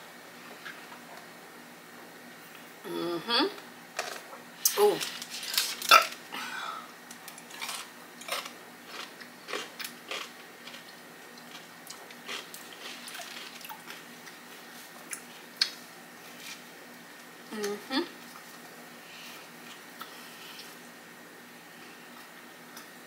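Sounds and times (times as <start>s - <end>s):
crunching and chewing pickle: 7.1s - 16.6s.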